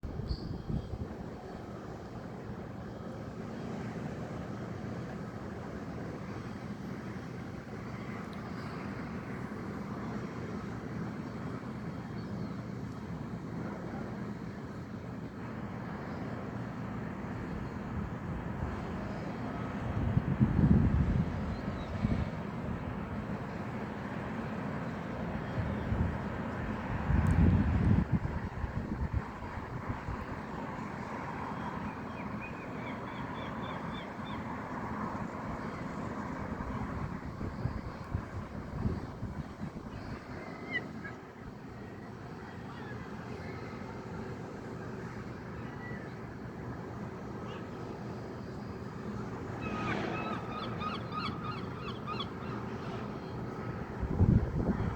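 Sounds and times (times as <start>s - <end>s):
steady background noise: 0.0s - 54.9s
steady outdoor rumble: 14.9s - 31.6s, 34.4s - 40.4s, 53.0s - 54.9s
gull calling: 49.6s - 52.7s.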